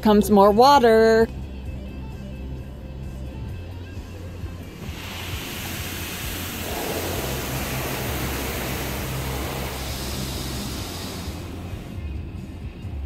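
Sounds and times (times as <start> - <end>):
low hum: 4.4 - 12.1
water jets spraying on car: 4.5 - 12.0.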